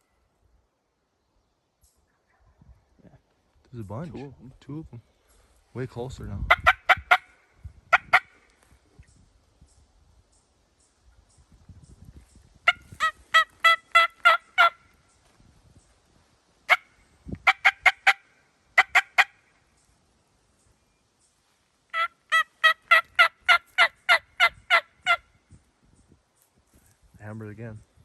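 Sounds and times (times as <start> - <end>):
turkey yelps: 6.5 - 7.3, 12.7 - 14.8, 16.7 - 18.2, 18.8 - 19.4, 21.9 - 25.2.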